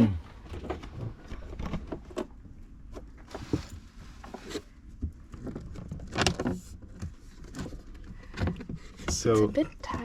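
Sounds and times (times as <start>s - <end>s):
knocks and rubbing of wooden frame: 4.3s - 10.0s.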